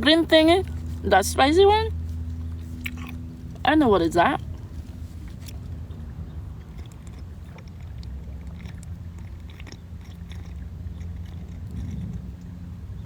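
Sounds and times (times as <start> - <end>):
steady low rumble: 0.0 - 13.0
person chewing food: 1.9 - 3.6, 4.4 - 13.0.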